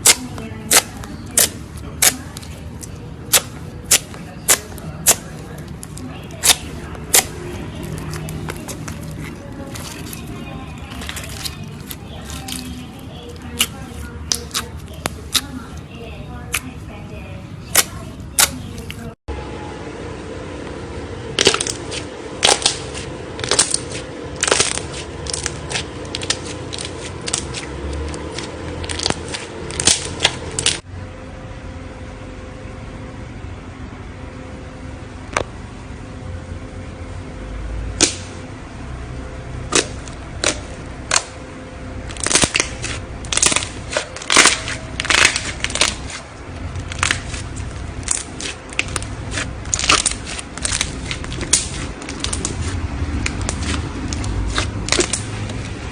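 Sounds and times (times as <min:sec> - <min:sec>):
clicks and crackles of slime: 0:00.0 - 0:07.3, 0:21.4 - 0:30.8, 0:39.7 - 0:41.4, 0:42.1 - 0:55.6.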